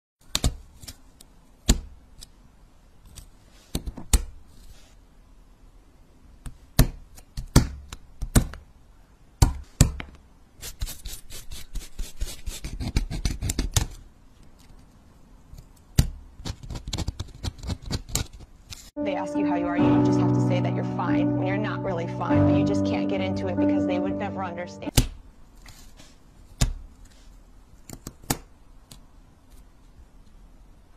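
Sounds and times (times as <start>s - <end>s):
sharp clicks of pieces snapping: 27.8s - 29.1s.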